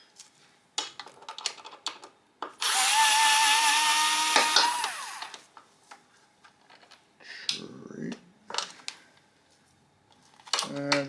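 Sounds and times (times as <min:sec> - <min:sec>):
electric screwdriver whining: 0:02.6 - 0:05.4.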